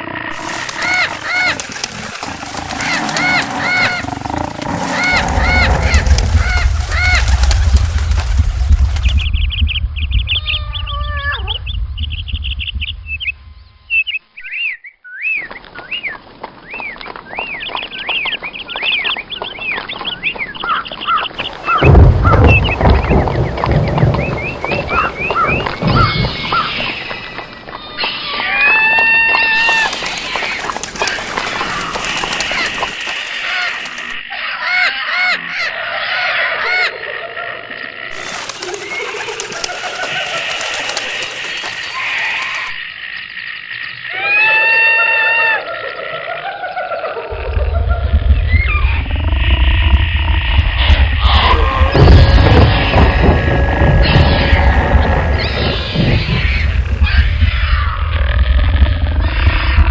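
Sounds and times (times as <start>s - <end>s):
low rumble: 3.9s - 14.0s, 21.5s - 27.2s, 47.3s - 59.9s
bird-like trills and chirps: 9.0s - 37.0s, 38.1s - 44.3s
bird honking calls: 20.6s - 36.9s.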